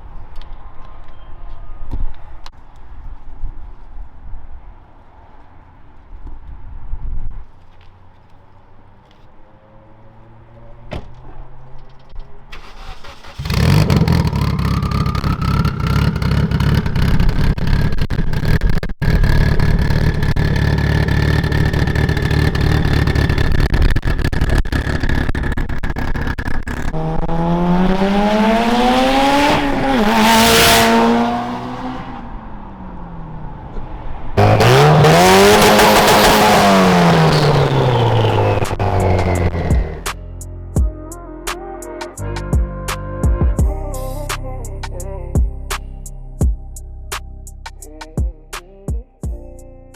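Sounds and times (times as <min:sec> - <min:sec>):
car engine accelerating hard: 0:12.6 - 0:40.1
rising whine: 0:19.0 - 0:40.2.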